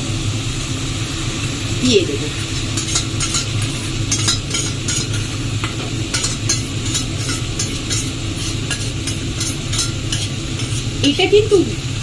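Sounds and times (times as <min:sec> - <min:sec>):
food sizzling in oil: 0:00.0 - 0:12.0
spatula scraping a pan: 0:02.4 - 0:11.2.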